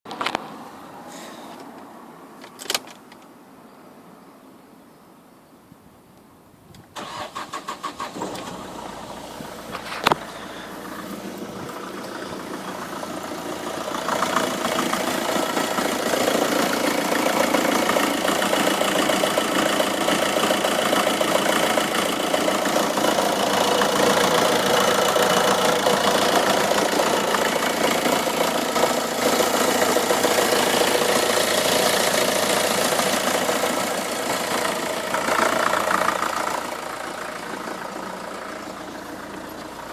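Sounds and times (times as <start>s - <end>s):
diesel engine idling: 7.0s - 39.9s.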